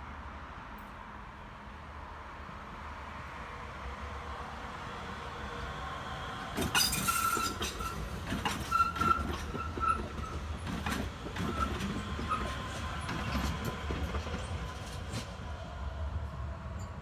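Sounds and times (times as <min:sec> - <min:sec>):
electric train passing: 0:03.3 - 0:17.0
wheels clattering over rail joints: 0:06.6 - 0:15.3
short high squeals: 0:06.8 - 0:10.4.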